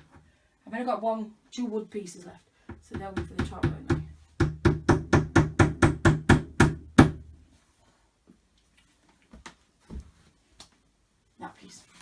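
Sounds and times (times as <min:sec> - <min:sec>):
wooden dowels being hammered: 0:02.7 - 0:07.3.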